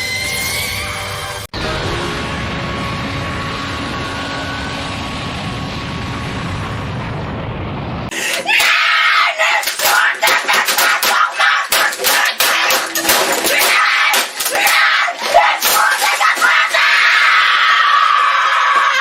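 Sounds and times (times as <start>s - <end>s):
steady rumbling noise: 1.5s - 8.2s
person screaming and shouting: 8.1s - 19.0s.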